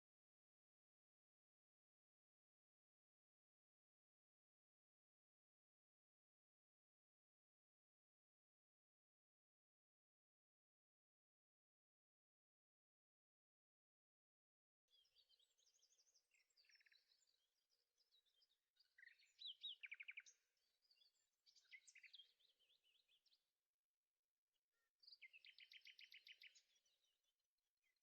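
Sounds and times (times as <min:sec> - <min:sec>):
songbird chirping and trilling: 0:14.9 - 0:23.8, 0:24.5 - 0:28.0.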